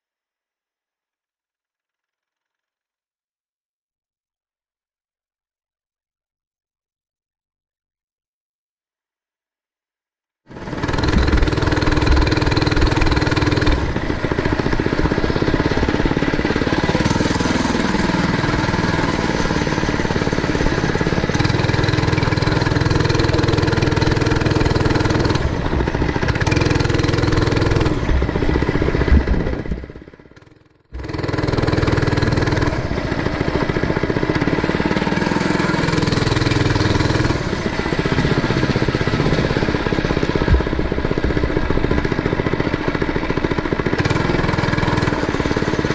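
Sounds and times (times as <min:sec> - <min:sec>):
small motorbike engine revving: 0:10.5 - 0:45.9.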